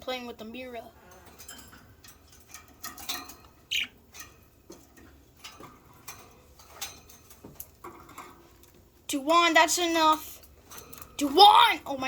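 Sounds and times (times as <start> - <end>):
beaks pecking at food and mirror: 0.1 - 12.0
budgerigar chirp: 3.7 - 3.9.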